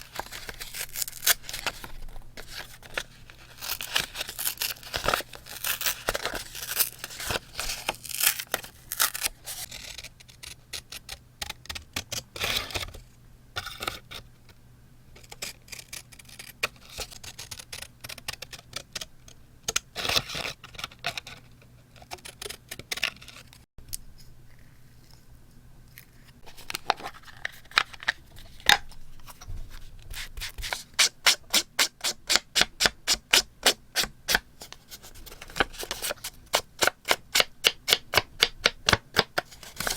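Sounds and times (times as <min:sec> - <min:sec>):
paper scraping and rustling: 0:00.0 - 0:10.5, 0:26.0 - 0:30.9, 0:39.4 - 0:39.9.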